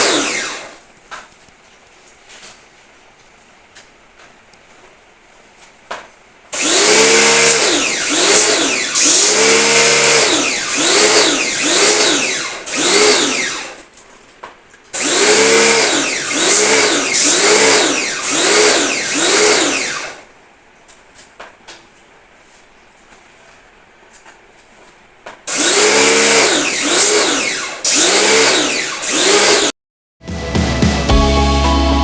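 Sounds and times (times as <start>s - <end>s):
pressure washer running: 0.0s - 0.8s, 6.6s - 13.8s, 15.0s - 20.2s, 25.5s - 29.7s.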